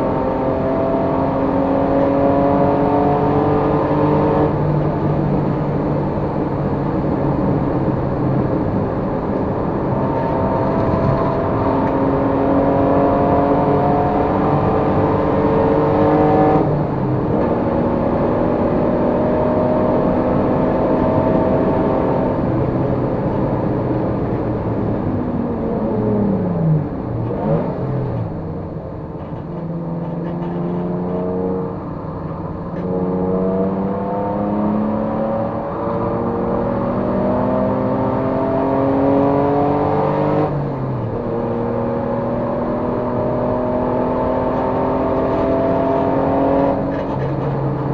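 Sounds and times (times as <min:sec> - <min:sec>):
race car engine revving: 0:29.5 - 0:47.9.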